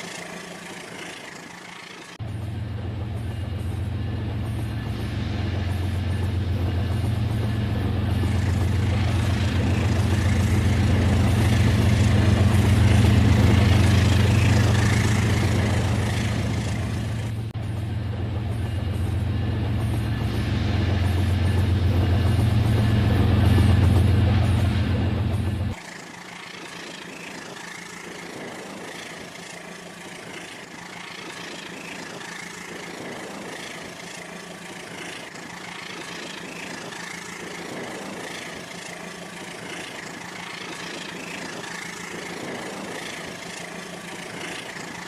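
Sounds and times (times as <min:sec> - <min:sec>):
rumbling wheel noise: 0:02.0 - 0:25.8
toy train motor hum: 0:25.8 - 0:45.0.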